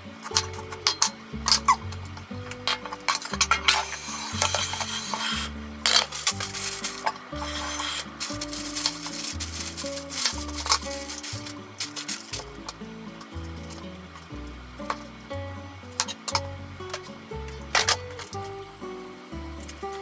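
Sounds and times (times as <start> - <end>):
background music with steady beat: 0.0 - 20.0
plastic packets crinkling: 2.4 - 13.9.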